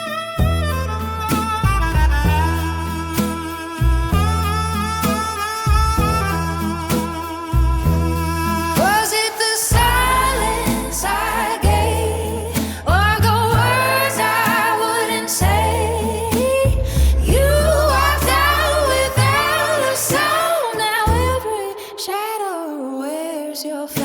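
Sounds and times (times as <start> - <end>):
bass line: 0.0 - 20.4, 21.1 - 21.5
drums: 0.4 - 20.5
person singing with vibrato: 7.2 - 24.0.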